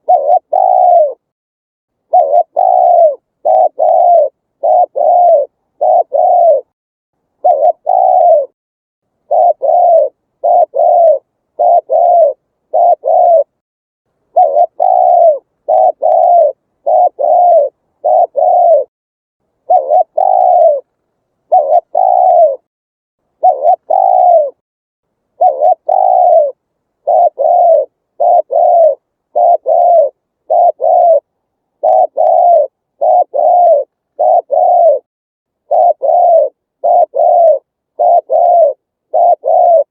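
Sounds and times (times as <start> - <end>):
dove cooing: 0.0 - 1.3, 2.0 - 6.7, 7.4 - 8.6, 9.2 - 13.6, 14.3 - 18.9, 19.6 - 20.9, 21.5 - 22.7, 23.4 - 24.6, 25.4 - 39.9.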